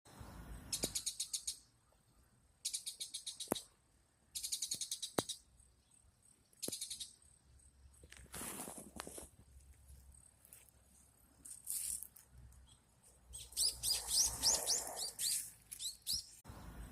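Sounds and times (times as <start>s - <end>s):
bird chattering: 0.7s - 1.7s, 2.6s - 3.7s, 4.4s - 5.4s, 6.6s - 7.2s, 13.3s - 16.3s.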